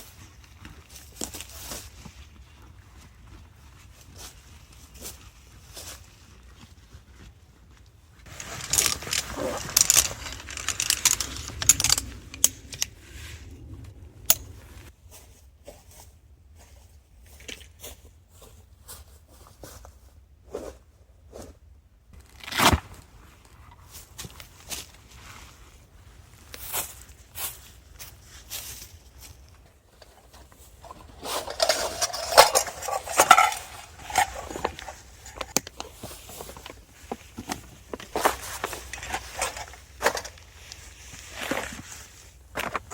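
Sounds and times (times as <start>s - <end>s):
gear clicks and knocks: 8.2s - 14.9s, 30.0s - 41.8s
gear rustling: 8.2s - 14.9s, 26.6s - 42.9s.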